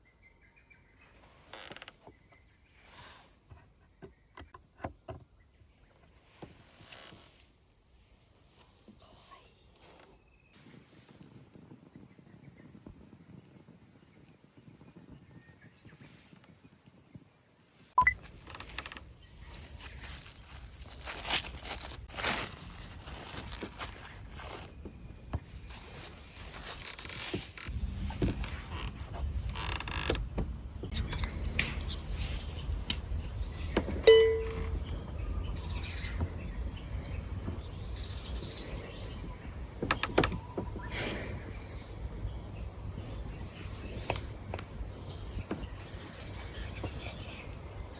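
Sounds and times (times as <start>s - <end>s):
small birds chirping: 0.0s - 47.9s
rustling and crinkling handling: 15.9s - 35.4s
low outdoor rumble: 27.7s - 39.8s
sharp clicks: 39.0s - 40.9s.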